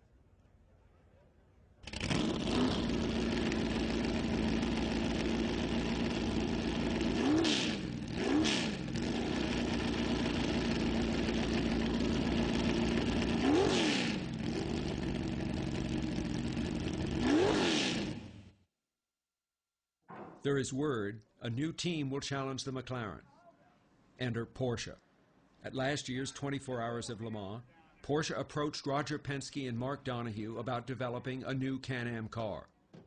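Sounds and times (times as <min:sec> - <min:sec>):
racing engine starting and idling: 0:01.8 - 0:18.5
engine throttle blips: 0:01.8 - 0:18.6.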